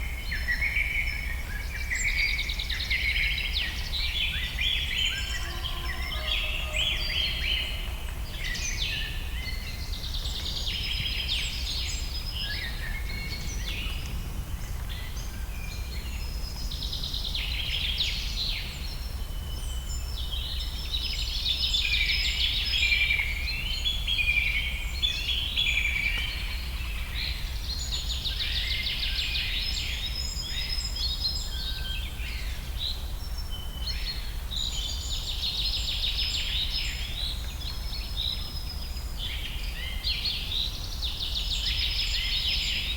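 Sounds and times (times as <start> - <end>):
songbirds chirping and trilling: 0.0 - 42.9
steady low rumble: 12.2 - 17.2.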